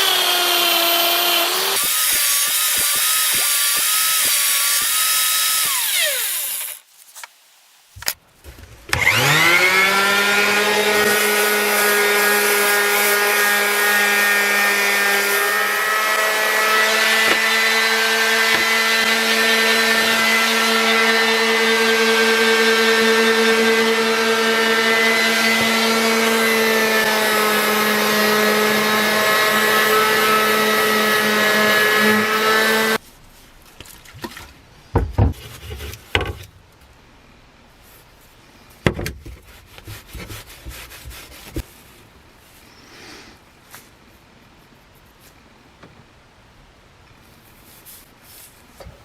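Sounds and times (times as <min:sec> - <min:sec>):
electric power tool working wood: 0:00.0 - 0:06.8, 0:08.9 - 0:33.0.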